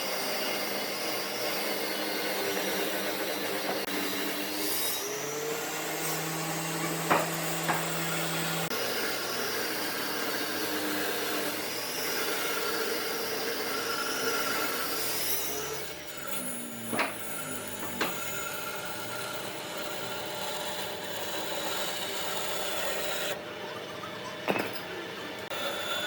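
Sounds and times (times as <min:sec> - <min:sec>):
electric power tool on wood: 0:00.0 - 0:23.4.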